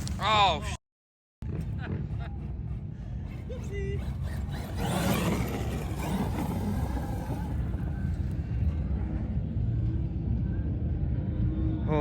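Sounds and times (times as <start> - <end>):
steady low rumble: 1.4 - 4.8, 5.4 - 12.0
vehicle passing by: 2.3 - 10.0.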